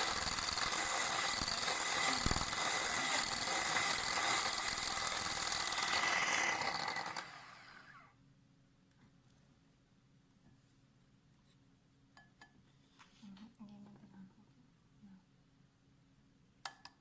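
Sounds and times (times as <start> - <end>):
mechanical whirring and scraping: 0.0 - 7.7.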